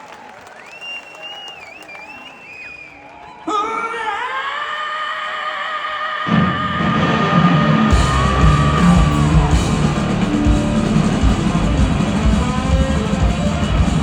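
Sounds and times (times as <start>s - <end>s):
rock band playing live: 6.3s - 14.0s.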